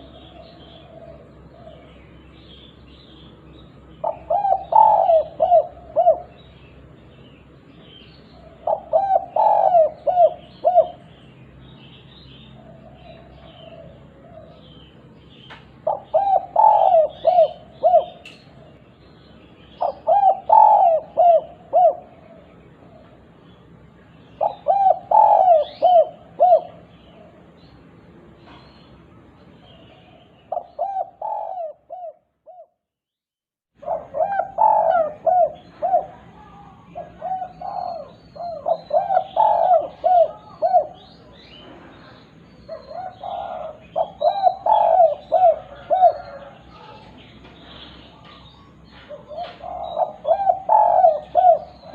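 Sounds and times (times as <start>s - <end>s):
dove cooing: 0.0s - 6.9s, 8.3s - 11.2s, 12.3s - 15.0s, 15.7s - 18.9s, 19.6s - 23.4s, 24.3s - 27.6s, 29.6s - 32.8s, 33.8s - 51.9s
small birds chirping faintly: 0.0s - 32.8s, 33.8s - 51.9s.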